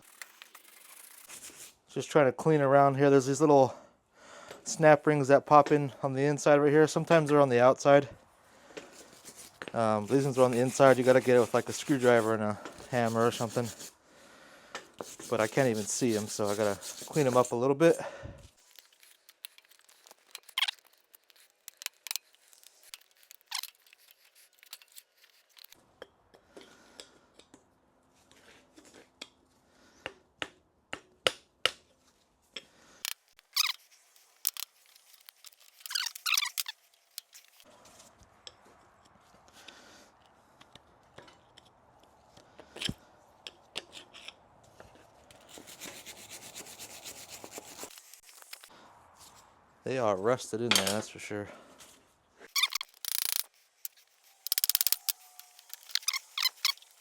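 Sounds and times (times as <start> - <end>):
hand tool scraping metal: 8.9 - 13.9, 15.0 - 18.0, 52.4 - 57.0.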